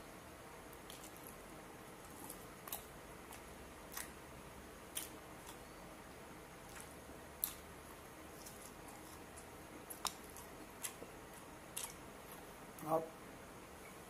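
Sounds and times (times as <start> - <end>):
person chewing: 0.7 - 1.4, 2.0 - 4.2, 4.9 - 5.7, 6.6 - 12.5
wet smacking clicks: 2.6 - 4.2.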